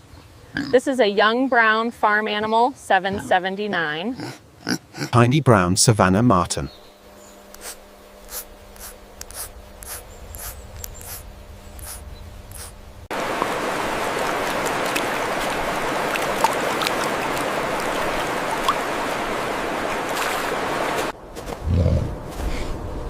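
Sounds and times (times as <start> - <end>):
steady rushing noise: 8.3 - 23.0.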